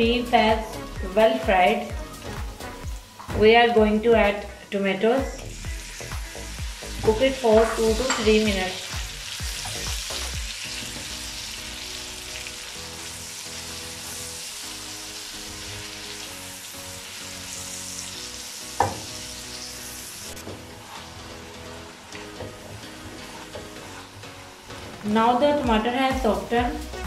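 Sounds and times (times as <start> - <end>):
meat sizzling in oil: 5.4 - 25.1.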